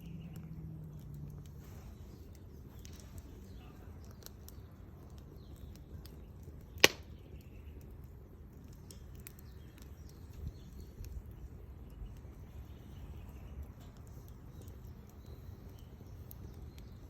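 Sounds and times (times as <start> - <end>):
firewood crackling: 0.0 - 17.0
loud pop of firewood: 6.8 - 7.2.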